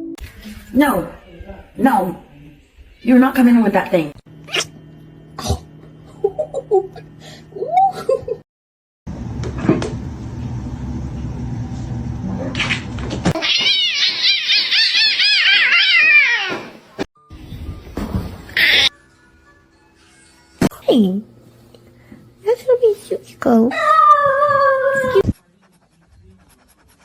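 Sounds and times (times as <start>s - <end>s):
cat meowing and yowling: 13.4s - 16.7s.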